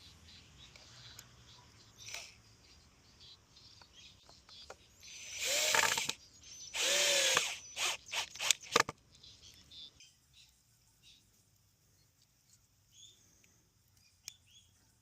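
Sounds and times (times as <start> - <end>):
power drill motor whine: 5.1 - 6.2, 6.8 - 8.9.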